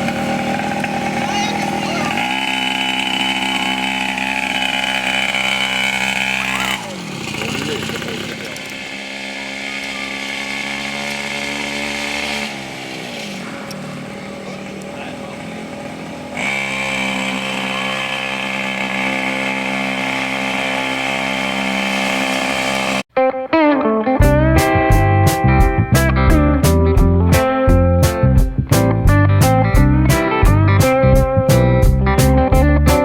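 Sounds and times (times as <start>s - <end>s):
motor running: 0.0s - 23.0s.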